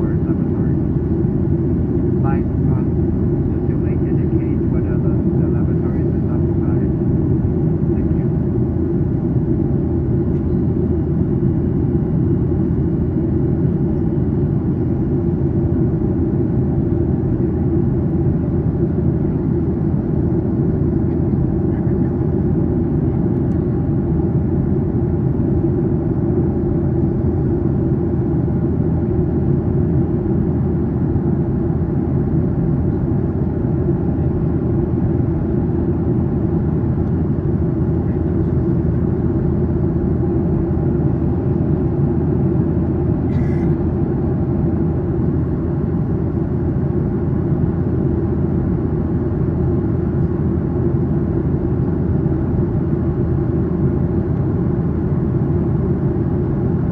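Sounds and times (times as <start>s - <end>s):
steady hums: 0.0s - 14.1s
jet engine drone in cabin: 0.0s - 56.9s.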